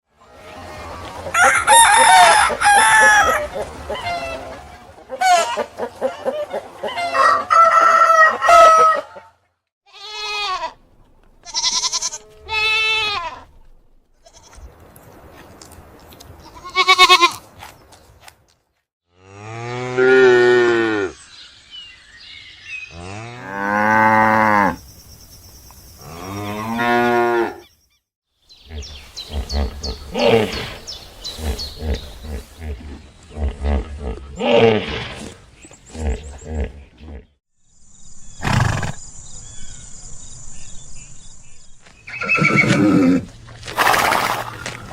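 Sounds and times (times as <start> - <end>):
rooster crowing: 1.3 - 3.6, 6.9 - 9.3.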